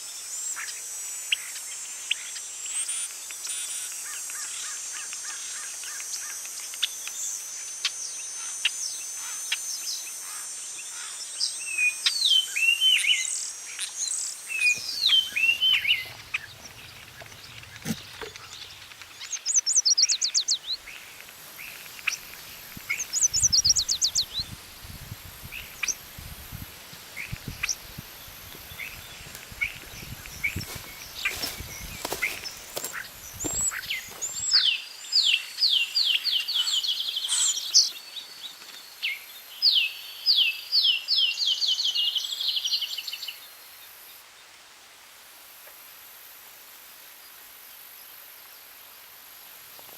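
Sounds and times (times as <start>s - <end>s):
birds singing and calling: 8.0s - 43.5s
soft low thumps or rustles: 29.1s - 34.4s.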